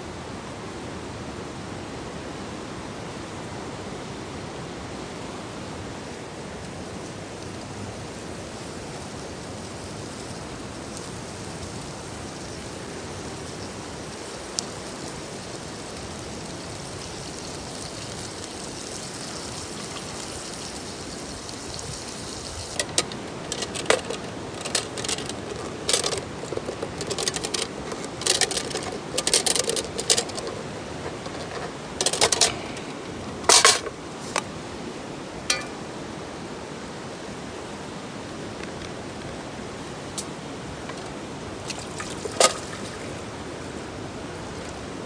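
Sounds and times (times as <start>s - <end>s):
steady background hiss: 0.0s - 45.0s
metal cookware clinking: 35.5s - 35.8s.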